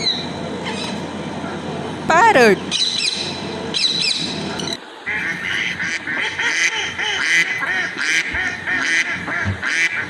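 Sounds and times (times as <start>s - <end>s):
shrill parrot call: 2.7s - 9.0s
ducks quacking: 3.9s - 10.0s.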